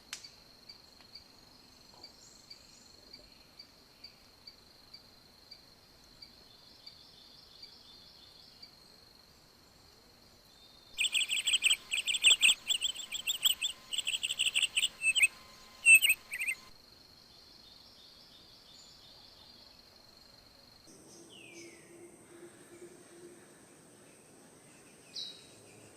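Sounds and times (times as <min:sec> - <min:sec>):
bird chirping: 0:10.5 - 0:16.7
high-pitched insect drone: 0:11.0 - 0:16.8.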